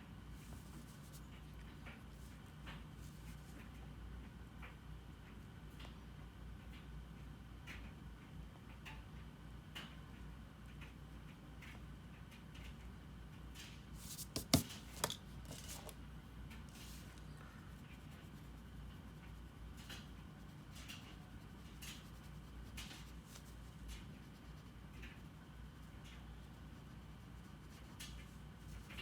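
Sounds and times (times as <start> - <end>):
drawing tool scratching on paper: 14.0 - 14.6.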